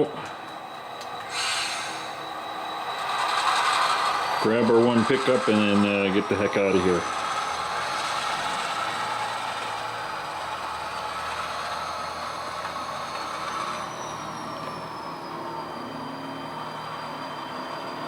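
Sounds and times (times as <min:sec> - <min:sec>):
model locomotive motor hum: 0:00.0 - 0:18.0
thin high whine: 0:00.0 - 0:18.0.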